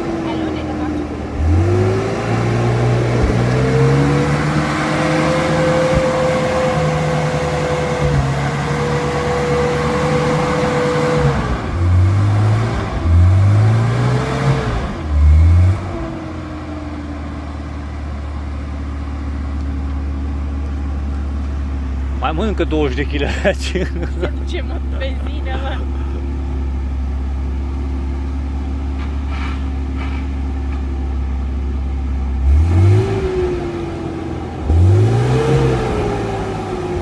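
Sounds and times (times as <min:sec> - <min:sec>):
car engine revving: 0:00.0 - 0:17.0, 0:32.4 - 0:37.0.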